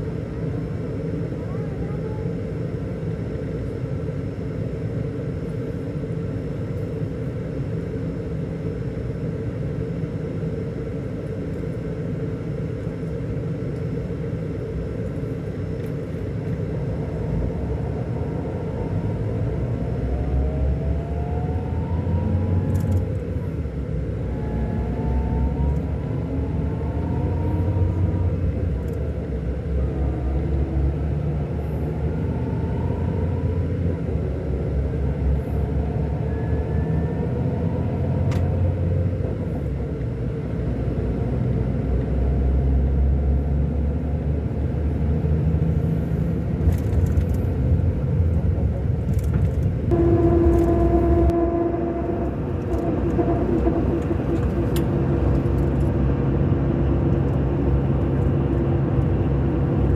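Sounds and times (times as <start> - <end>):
bus diesel engine rumbling: 0.0 - 59.9
steady higher hum: 49.9 - 59.9.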